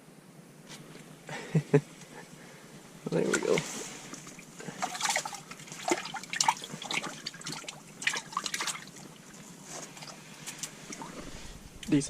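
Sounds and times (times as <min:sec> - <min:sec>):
small water splashes: 0:03.1 - 0:12.0
water dripping and trickling: 0:03.1 - 0:12.0.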